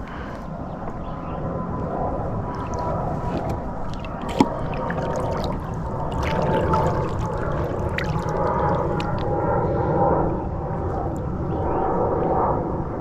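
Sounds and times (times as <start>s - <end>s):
water sloshing and splashing: 2.2s - 11.3s.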